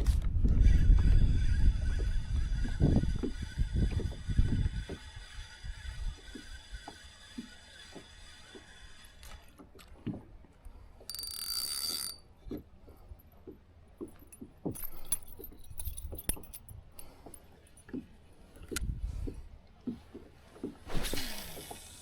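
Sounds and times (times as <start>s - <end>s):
fishing line whizzing off reel: 0.6s - 9.6s, 20.8s - 22.0s.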